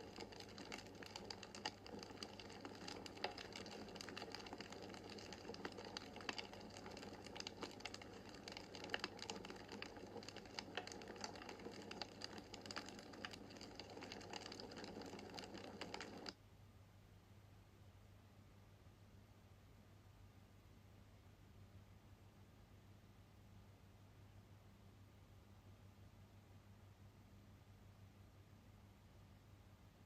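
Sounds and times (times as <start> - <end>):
wood fire crackling: 0.0 - 16.3
faint low hum: 0.0 - 30.0.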